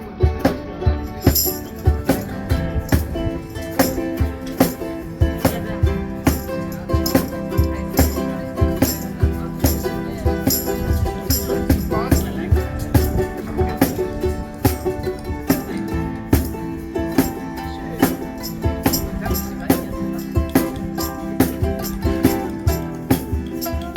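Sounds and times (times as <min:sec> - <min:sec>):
ukuleles strumming: 0:00.0 - 0:23.9
shaker: 0:00.6 - 0:23.9
tambourine: 0:01.0 - 0:04.9.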